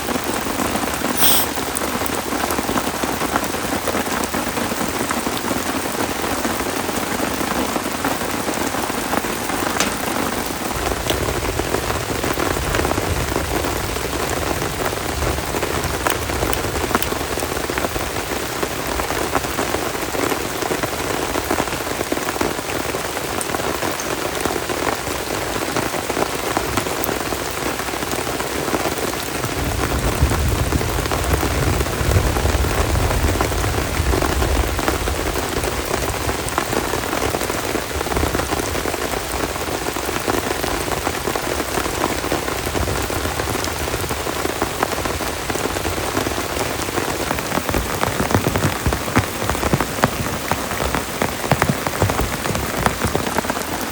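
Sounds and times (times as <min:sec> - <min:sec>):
heavy rain pattering: 0:00.0 - 0:53.9.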